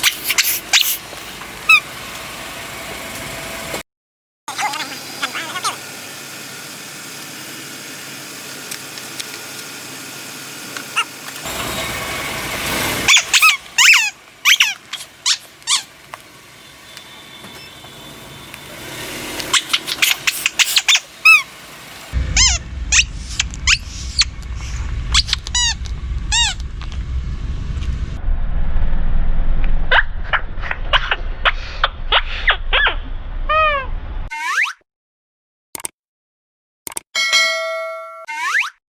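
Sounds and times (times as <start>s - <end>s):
low car rumble: 0.1s - 3.8s, 5.0s - 34.3s
rubber squeaky toys squeaking: 13.1s - 15.9s, 19.4s - 21.5s, 32.1s - 34.8s, 38.3s - 38.8s.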